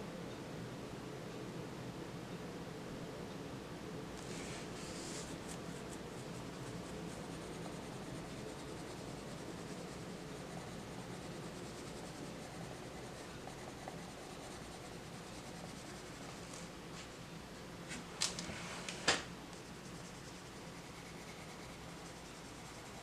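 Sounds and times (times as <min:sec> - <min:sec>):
background hiss: 0:03.8 - 0:23.0
pencil scratching on paper: 0:04.2 - 0:16.6, 0:19.6 - 0:23.0.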